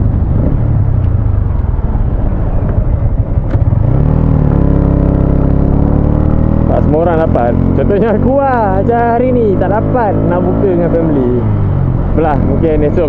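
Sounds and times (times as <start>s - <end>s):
wind rushing over helmet camera: 0.0s - 6.6s
motorcycle engine running: 0.0s - 13.0s.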